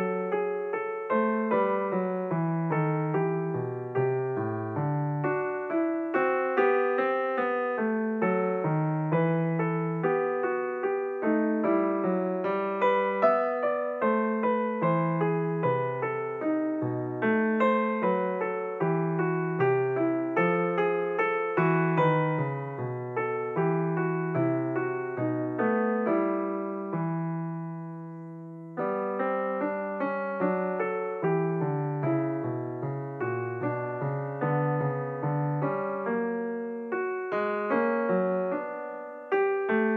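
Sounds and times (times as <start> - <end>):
piano music: 0.0 - 39.9.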